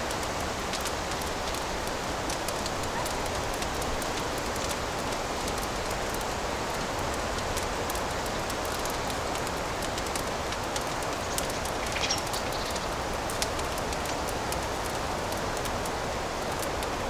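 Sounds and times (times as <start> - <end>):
fire crackling: 0.0 - 17.0
fire popping: 0.0 - 17.0
soft hiss: 8.3 - 14.7.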